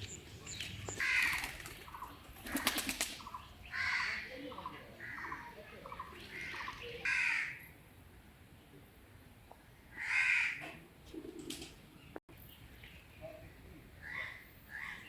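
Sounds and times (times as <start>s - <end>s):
crow cawing: 1.0s - 1.6s, 3.7s - 4.4s, 6.3s - 7.7s, 10.0s - 10.8s, 14.0s - 15.0s.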